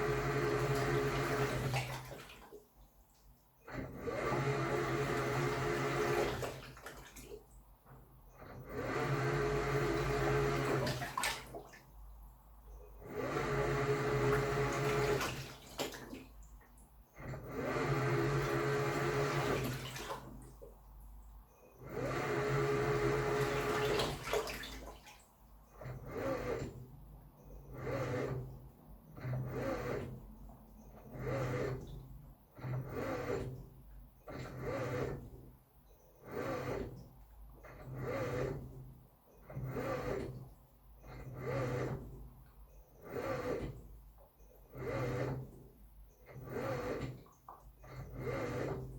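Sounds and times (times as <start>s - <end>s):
low motor hum: 0.0s - 2.5s, 3.1s - 24.8s
washing machine churning water: 0.0s - 48.9s
washing machine motor humming: 0.0s - 48.9s.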